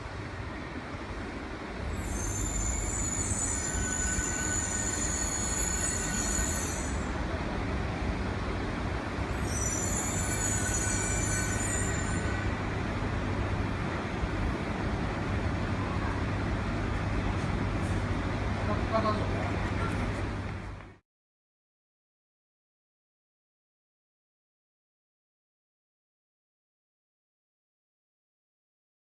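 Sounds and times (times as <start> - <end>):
train rumbling: 0.0 - 21.0
high-pitched train squeal: 1.8 - 7.2, 9.2 - 12.8.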